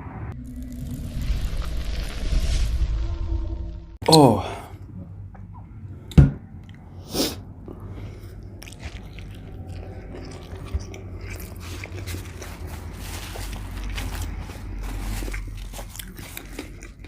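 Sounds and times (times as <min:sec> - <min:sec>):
biting and chewing: 0:07.6 - 0:17.0.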